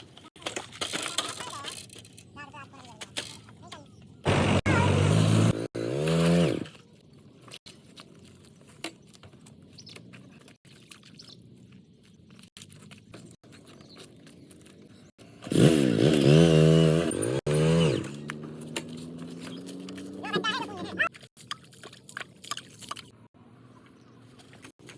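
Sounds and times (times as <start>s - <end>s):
vehicle engine revving: 4.2s - 6.8s, 15.1s - 21.1s.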